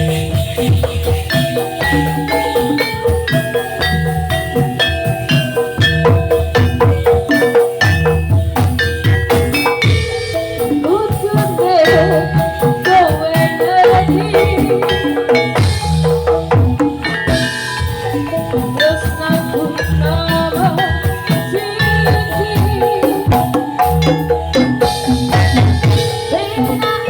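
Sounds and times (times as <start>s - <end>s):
hand drum strokes: 0.0s - 27.0s
metallophones and gongs melody: 0.0s - 27.0s
person singing ornamented vocal: 10.8s - 15.5s, 18.5s - 24.7s.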